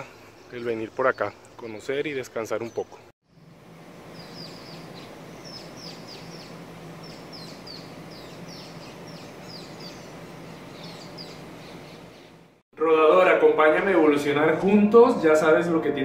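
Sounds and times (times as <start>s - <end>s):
small birds chirping: 0.0s - 12.6s
steady outdoor hiss: 0.0s - 16.0s.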